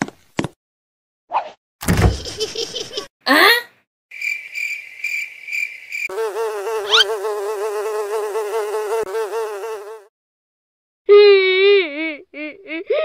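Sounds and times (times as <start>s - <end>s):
cartoon housefly buzzing: 6.0s - 10.1s.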